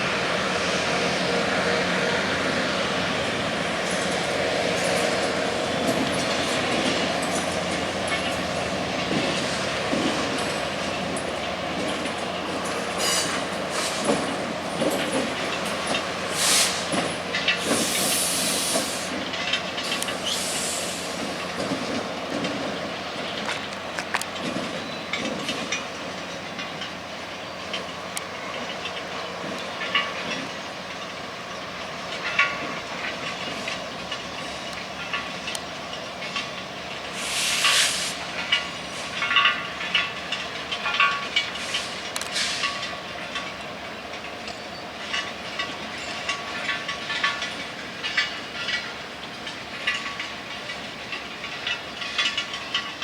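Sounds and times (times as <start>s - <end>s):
freight train wheels rumbling: 0.0s - 53.0s
high-pitched hisses or squeals: 16.3s - 16.9s, 17.6s - 19.2s, 20.2s - 21.2s, 37.1s - 38.3s.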